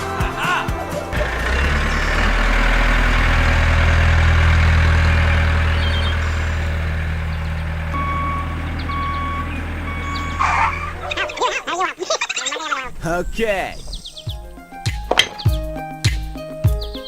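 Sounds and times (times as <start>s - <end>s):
heavy vehicle engine humming: 0.0s - 12.2s
reversing beeper: 1.1s - 11.3s.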